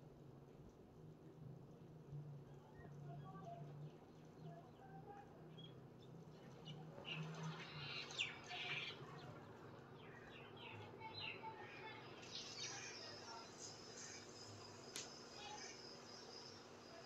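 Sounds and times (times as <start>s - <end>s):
small birds chirping: 3.8s - 17.0s.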